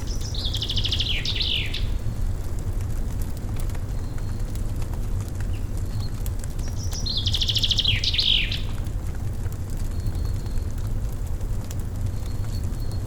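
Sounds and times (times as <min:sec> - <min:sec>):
wood fire crackling: 0:00.0 - 0:13.0
songbird trilling: 0:00.1 - 0:02.0, 0:06.7 - 0:08.7.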